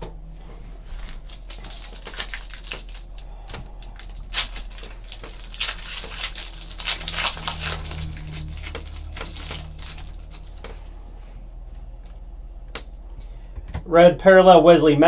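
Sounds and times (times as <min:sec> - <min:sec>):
low steady hum: 0:00.0 - 0:15.0
foil wrappers and cards rustling: 0:00.7 - 0:11.3.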